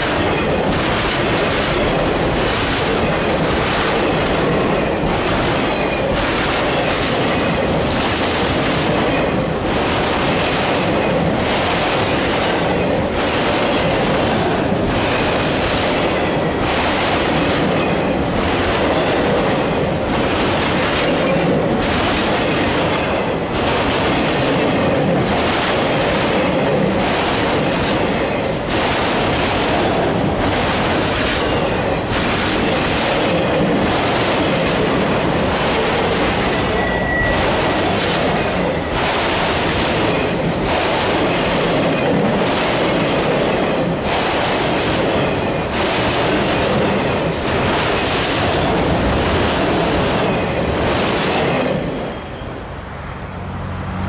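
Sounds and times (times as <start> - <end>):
freight train wheels rumbling: 0.0 - 54.0
wheel squeal: 36.4 - 39.0, 51.9 - 52.7.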